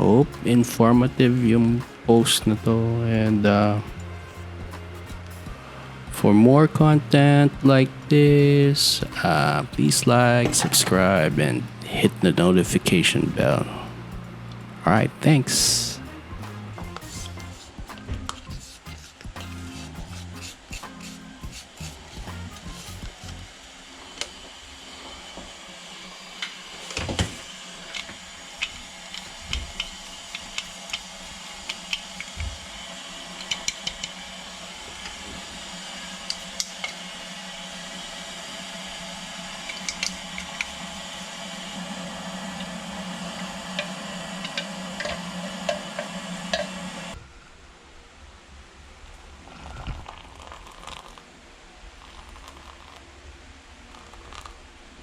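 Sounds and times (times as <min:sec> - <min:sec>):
water hissing in a kettle: 0:16.8 - 0:47.2, 0:49.4 - 0:55.0.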